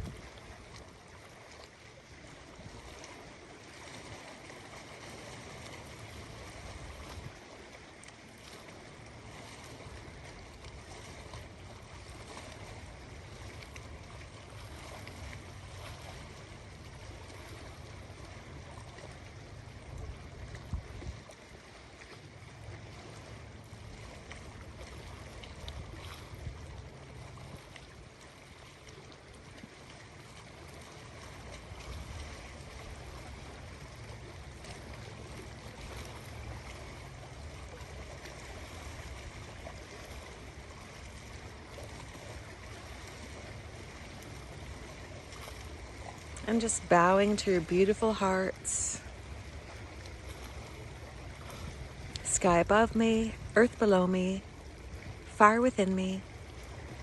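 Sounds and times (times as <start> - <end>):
wind rumble on microphone: 0.0 - 7.7, 9.4 - 21.6, 23.8 - 28.2
ocean waves rushing: 30.6 - 57.0.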